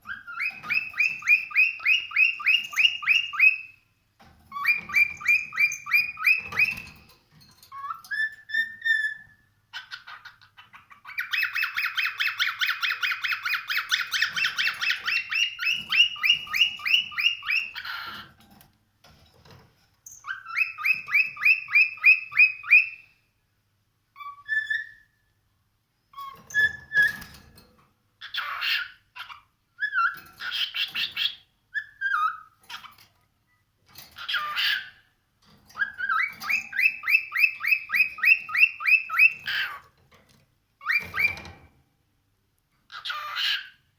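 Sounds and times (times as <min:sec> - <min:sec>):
cockatiel whistling: 0:00.1 - 0:03.8, 0:04.5 - 0:06.9, 0:20.2 - 0:23.1, 0:24.2 - 0:25.1, 0:35.8 - 0:39.8.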